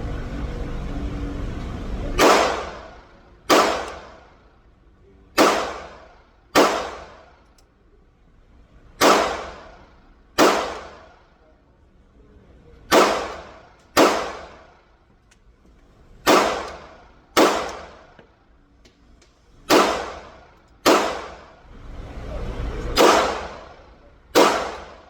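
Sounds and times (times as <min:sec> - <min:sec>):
low steady rumble: 0:00.0 - 0:25.0
pistol shots ringing: 0:02.2 - 0:04.3, 0:05.4 - 0:07.3, 0:09.0 - 0:11.1, 0:12.9 - 0:14.7, 0:16.2 - 0:18.1, 0:19.7 - 0:21.6, 0:23.0 - 0:25.0.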